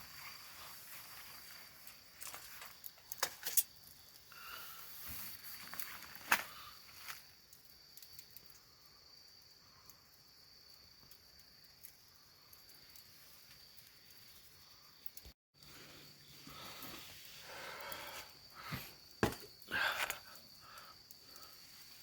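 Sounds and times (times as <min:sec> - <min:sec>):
insect trill: 0:00.0 - 0:22.0
small clicks and crackles: 0:10.8 - 0:15.7.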